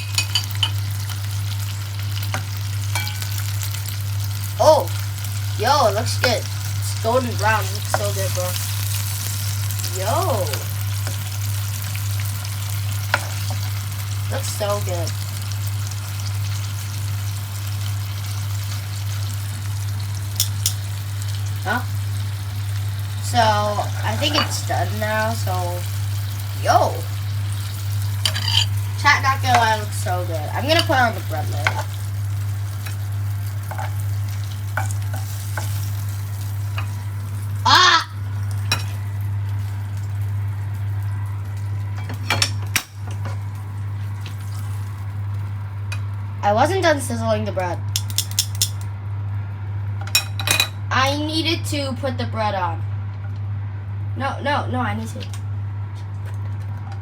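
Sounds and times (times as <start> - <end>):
sausages sizzling in a frying pan: 0.0 - 51.2
tongs clicking against pan: 2.3 - 3.3, 20.4 - 20.8, 47.9 - 48.9
person crying out: 37.6 - 38.2.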